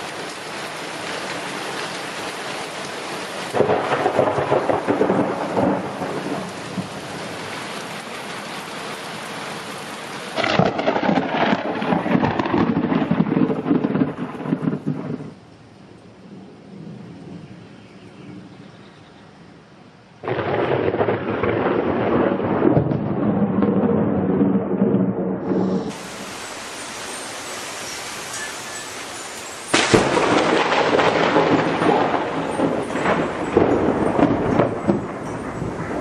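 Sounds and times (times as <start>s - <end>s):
heavy rain: 0.0s - 36.0s
thunder rolls: 3.5s - 7.4s, 10.4s - 15.4s, 20.2s - 26.1s, 29.7s - 36.0s.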